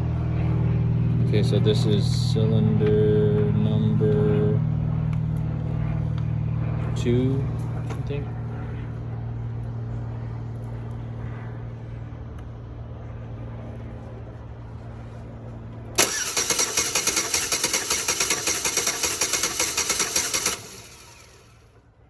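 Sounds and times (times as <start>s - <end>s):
low hum: 0.0s - 22.0s
engine cranking by starter: 16.0s - 21.8s.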